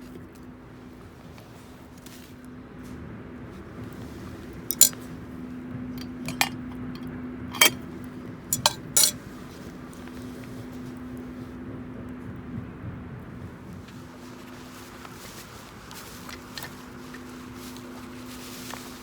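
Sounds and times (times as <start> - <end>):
cooking gear clinking: 4.7 - 5.0, 6.0 - 7.8, 8.5 - 9.2.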